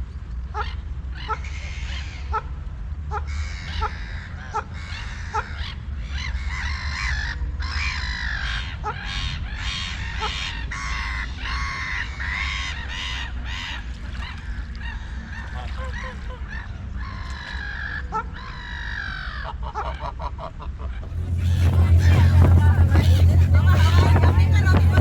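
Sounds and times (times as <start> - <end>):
loud low hum: 21.0 - 25.0.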